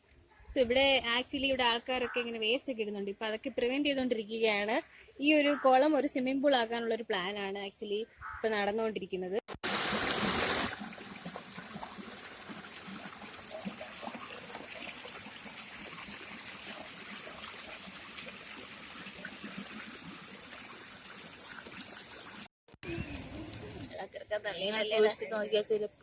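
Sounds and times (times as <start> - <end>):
water trickling: 9.6 - 24.0.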